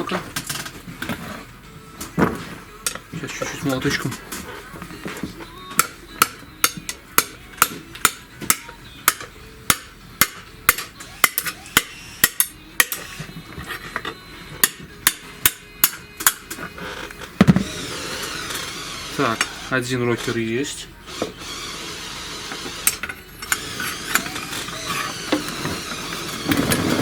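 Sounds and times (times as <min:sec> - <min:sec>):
small hammer tapping metal: 0:05.8 - 0:13.0, 0:14.6 - 0:16.4.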